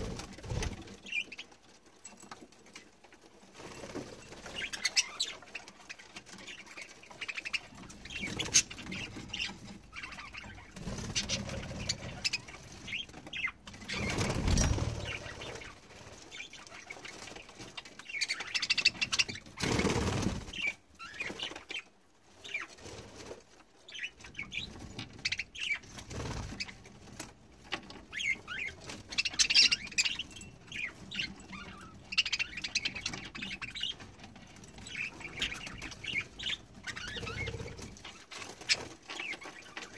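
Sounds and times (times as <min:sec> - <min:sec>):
budgerigars chirping: 0:04.6 - 0:15.7, 0:28.1 - 0:34.1, 0:34.8 - 0:39.9
wings flapping: 0:13.8 - 0:15.8.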